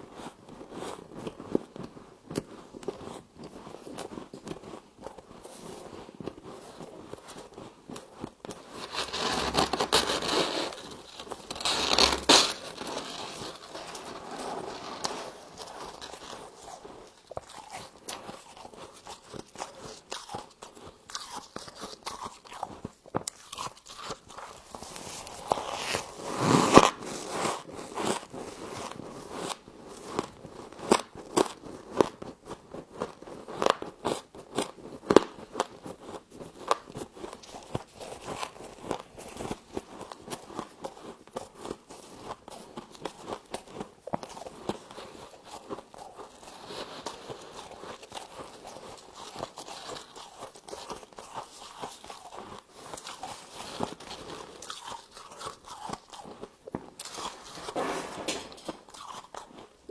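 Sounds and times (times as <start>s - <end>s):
frost being chewed crunching: 6.8s - 25.6s, 42.7s - 57.8s, 58.6s - 59.9s.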